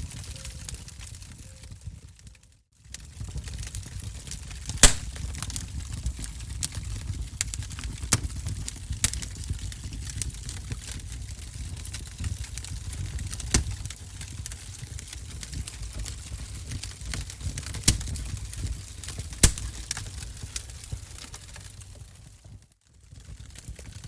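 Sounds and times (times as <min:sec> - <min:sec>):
wood fire crackling: 0:00.1 - 0:24.0.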